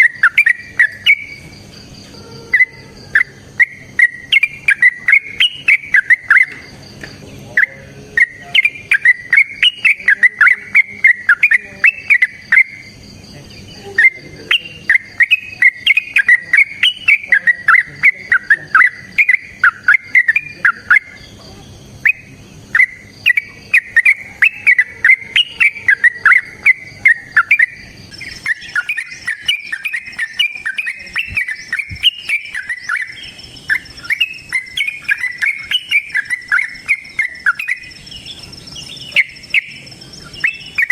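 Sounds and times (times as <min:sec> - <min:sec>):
bird singing bubbling phrases: 0:00.0 - 0:40.9
faint high-pitched buzzing: 0:00.0 - 0:40.9.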